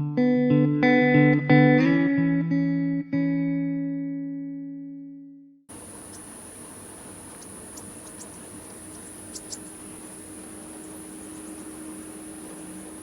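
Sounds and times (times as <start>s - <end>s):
background hiss: 5.7s - 13.0s
faint clicks: 5.7s - 13.0s
low hum: 5.7s - 13.0s.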